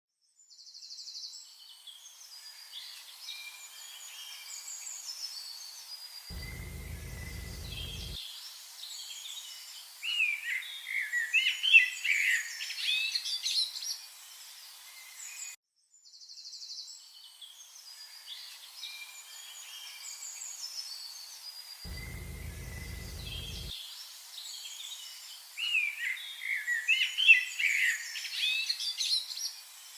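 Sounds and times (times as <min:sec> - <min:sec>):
songbirds singing and chirping: 0:06.3 - 0:08.2, 0:16.3 - 0:23.7.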